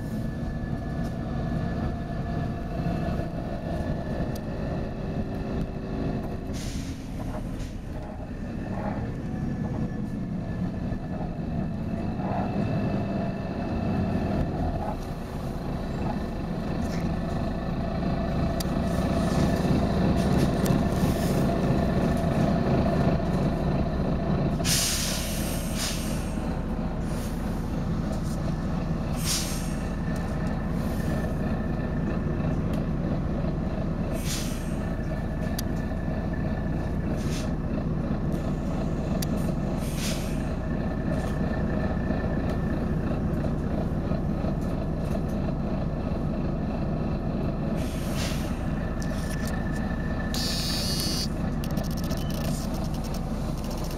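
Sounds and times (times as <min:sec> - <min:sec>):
bus diesel engine running: 0:00.0 - 0:53.9
air brake hisses: 0:06.5 - 0:07.9, 0:24.6 - 0:26.5, 0:29.1 - 0:30.0, 0:34.2 - 0:34.8, 0:37.2 - 0:37.5, 0:39.8 - 0:40.5, 0:47.8 - 0:48.7, 0:50.3 - 0:51.3.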